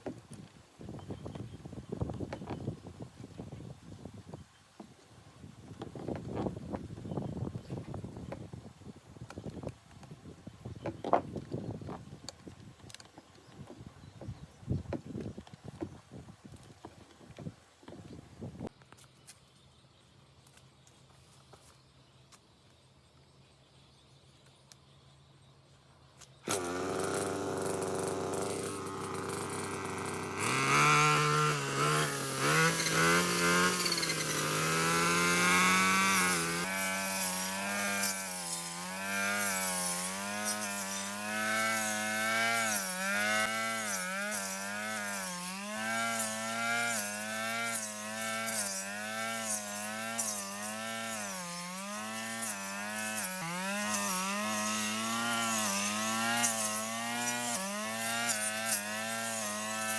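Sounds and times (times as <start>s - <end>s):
lawn mower engine running: 26.4s - 59.9s.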